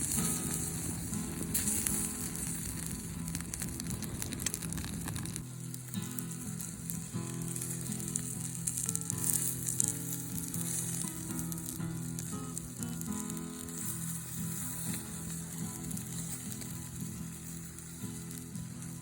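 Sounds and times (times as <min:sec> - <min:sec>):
meat sizzling over fire: 0:00.0 - 0:19.0.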